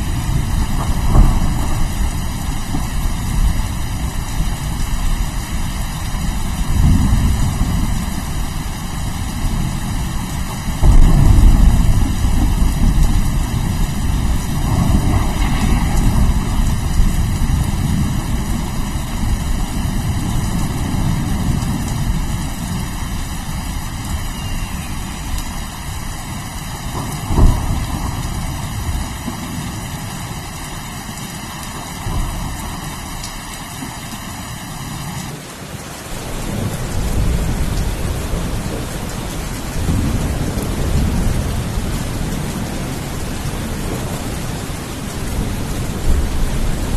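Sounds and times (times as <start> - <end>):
sharp thunderclap: 0.0 - 3.8, 10.7 - 23.1, 26.8 - 29.7
low rolling thunder: 0.0 - 30.9, 36.2 - 46.9
steady rain: 0.0 - 46.9.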